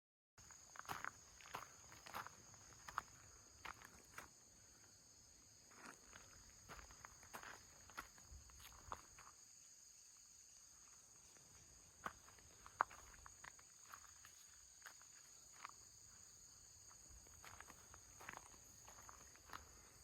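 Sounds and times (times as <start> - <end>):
crickets trilling: 0.4 - 20.0.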